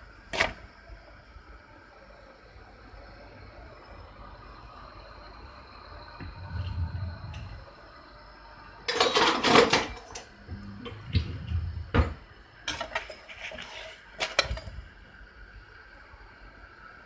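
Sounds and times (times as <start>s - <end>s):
utensils and cookware clattering: 8.9s - 11.2s, 12.6s - 14.8s.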